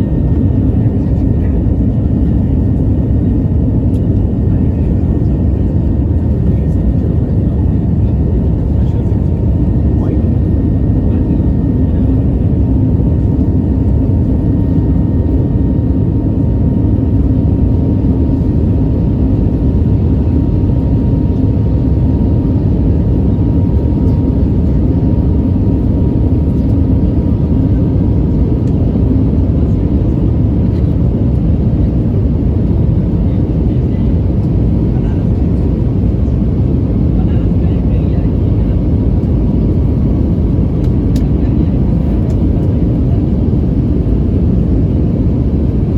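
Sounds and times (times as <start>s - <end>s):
jet engines and airflow rumble: 0.0s - 45.9s.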